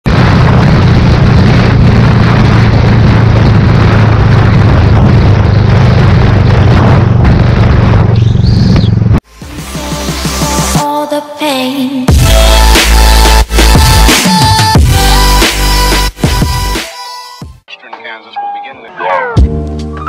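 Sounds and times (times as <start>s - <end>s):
wind rush on microphone: 0.0s - 9.2s
motorcycle engine cruising: 0.1s - 9.2s.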